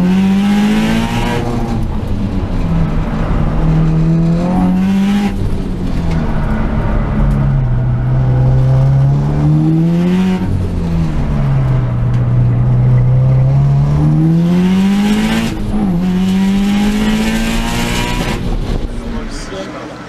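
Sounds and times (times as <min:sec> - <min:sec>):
car engine revving from inside cabin: 0:12.5 - 0:18.9.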